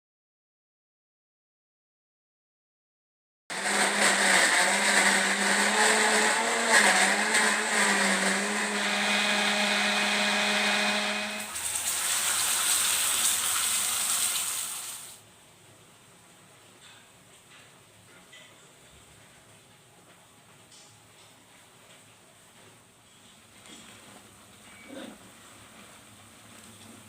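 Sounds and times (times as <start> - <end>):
electric blender running: 3.5 - 14.0.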